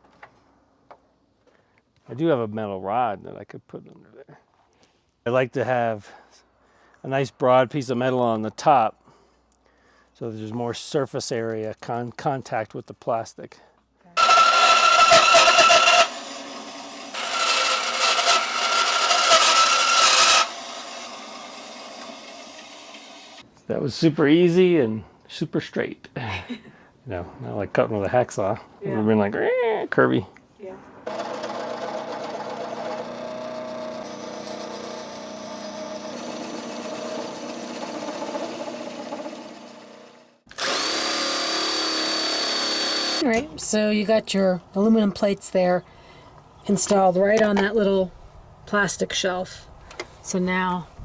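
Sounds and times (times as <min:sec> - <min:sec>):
power saw cutting aluminum: 0:14.2 - 0:23.4, 0:31.1 - 0:43.3.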